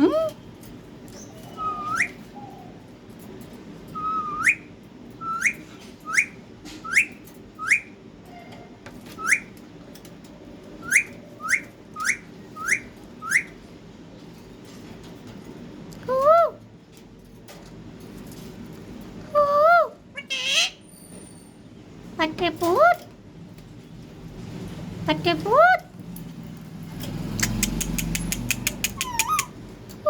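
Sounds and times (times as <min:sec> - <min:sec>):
parrot rising whistles: 0:01.5 - 0:02.6, 0:03.9 - 0:08.0, 0:10.8 - 0:13.6, 0:28.8 - 0:29.5.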